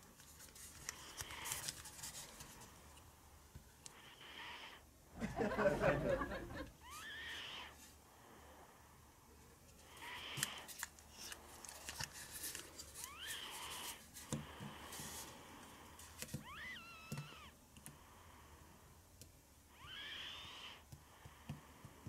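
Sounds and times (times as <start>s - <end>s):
high squeaky cries: 6.8s - 7.7s, 13.0s - 13.8s, 16.4s - 17.6s, 19.8s - 20.8s.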